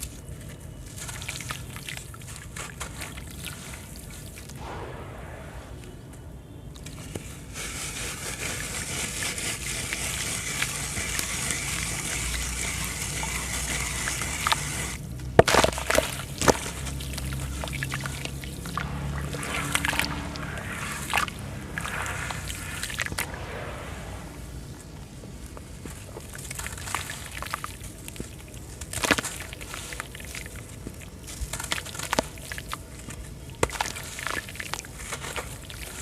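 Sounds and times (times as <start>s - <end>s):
small crumbling crackles: 0.0s - 4.6s, 25.1s - 36.0s
trickling sloshing hiss in water: 0.0s - 4.6s, 6.8s - 36.0s
sharp cracks and splashes: 8.0s - 36.0s.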